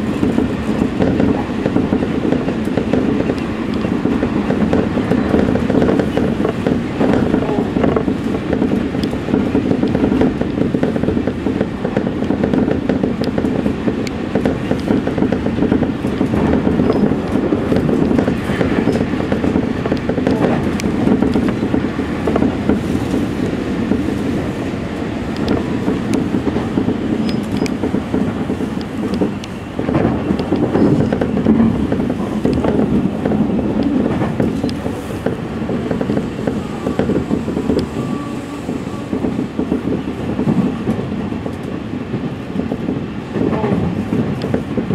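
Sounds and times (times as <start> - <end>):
rumble of wheels on rail: 0.0 - 44.9
wheels clicking over rail joints: 0.0 - 44.9.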